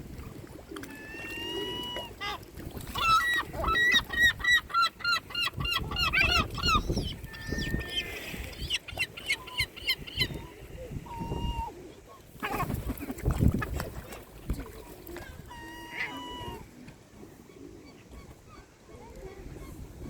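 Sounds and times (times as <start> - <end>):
gulls calling: 0.8 - 13.7, 14.6 - 16.8.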